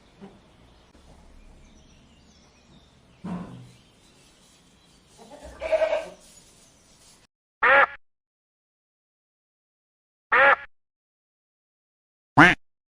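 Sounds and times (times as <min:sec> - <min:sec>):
goat bleating: 0:05.2 - 0:06.2.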